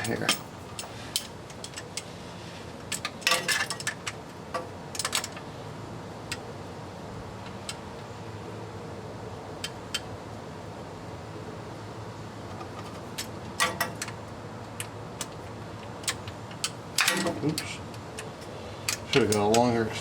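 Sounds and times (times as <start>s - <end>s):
steady low hum: 0.0s - 20.0s
metal socket clinking on bolts: 2.9s - 5.4s, 12.8s - 14.2s, 14.8s - 18.3s, 18.9s - 19.7s.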